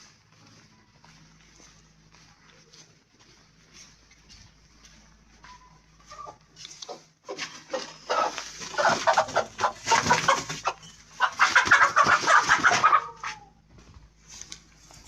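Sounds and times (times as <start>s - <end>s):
chickens clucking: 5.4s - 13.6s.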